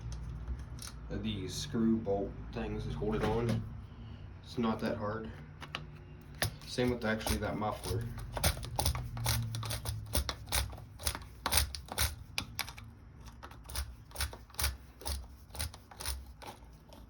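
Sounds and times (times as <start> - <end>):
hand tools and metal parts clicking: 0.0 - 1.0, 5.6 - 17.0.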